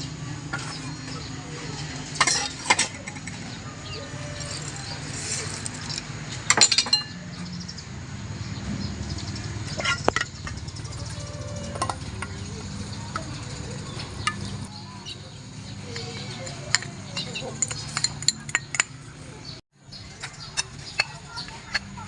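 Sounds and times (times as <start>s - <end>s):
steady low hum: 0.0s - 19.5s
kitchen utensils clicking: 2.1s - 7.2s, 15.9s - 19.6s.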